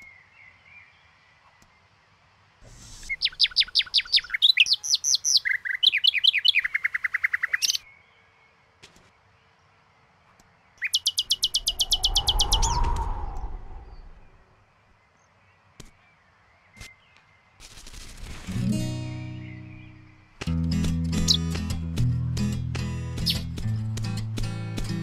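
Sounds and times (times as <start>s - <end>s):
songbird chirping in fast trills: 3.0s - 17.5s, 19.0s - 21.8s, 23.2s - 23.6s
low whoosh: 11.4s - 14.4s.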